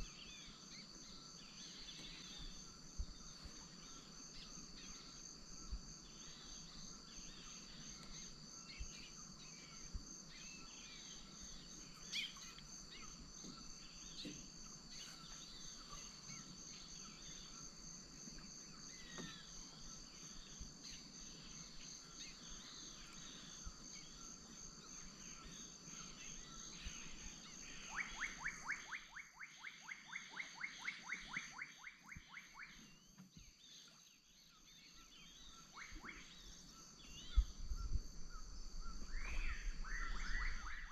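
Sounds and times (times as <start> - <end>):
high insect drone: 0.0 - 40.9
bird chirps: 10.4 - 17.6, 25.3 - 40.9.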